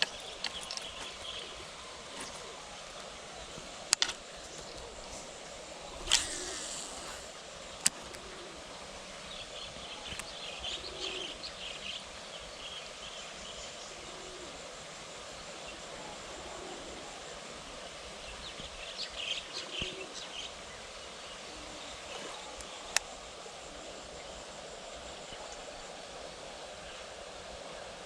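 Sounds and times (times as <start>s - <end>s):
birds chirping: 0.0s - 3.7s, 4.3s - 8.4s
background hiss: 0.0s - 28.0s.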